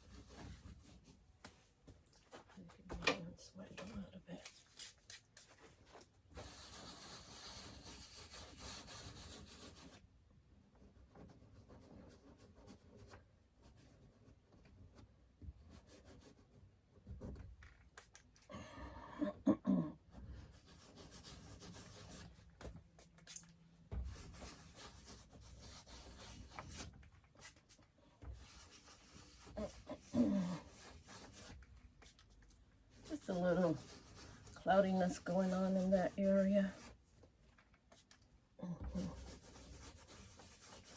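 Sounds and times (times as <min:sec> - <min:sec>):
paint tool scraping canvas: 0:04.8 - 0:10.0, 0:20.1 - 0:37.1, 0:38.8 - 0:40.9.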